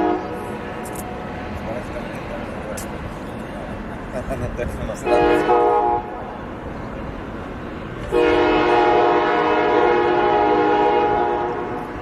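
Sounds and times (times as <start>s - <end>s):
locomotive air horn: 0.0s - 0.6s, 5.0s - 6.2s, 8.0s - 12.0s.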